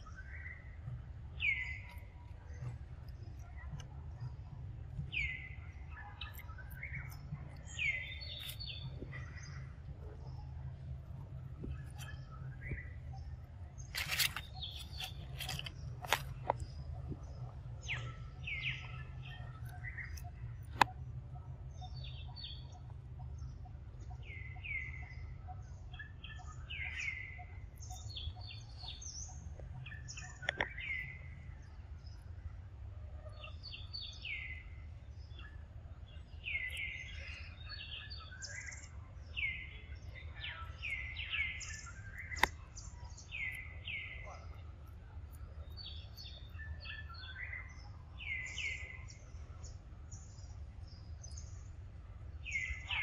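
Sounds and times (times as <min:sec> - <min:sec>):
small birds chirping: 0:00.0 - 0:53.0
low rumble: 0:00.7 - 0:25.4.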